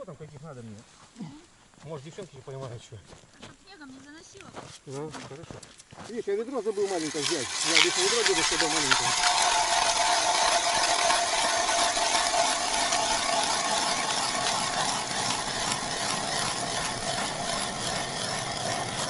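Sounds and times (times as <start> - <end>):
small motor hissing: 6.6 - 19.0.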